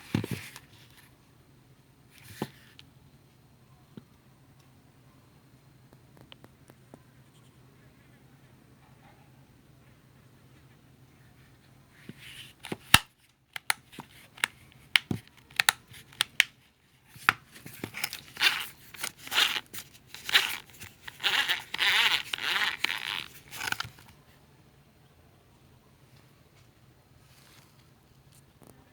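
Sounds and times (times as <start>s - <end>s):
rustling and crinkling: 11.5s - 24.4s, 26.1s - 28.9s.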